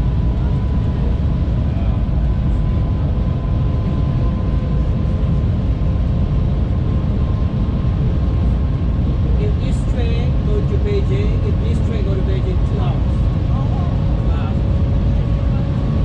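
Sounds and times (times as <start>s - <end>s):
low rumble of train carriage: 0.0s - 16.0s.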